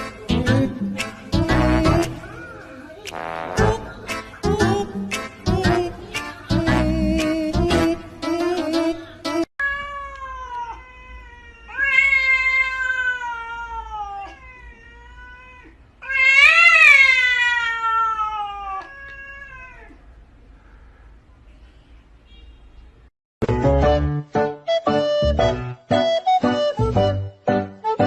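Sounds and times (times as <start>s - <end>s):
song music: 0.0s - 9.5s, 23.4s - 28.0s
cat meowing: 9.6s - 20.1s.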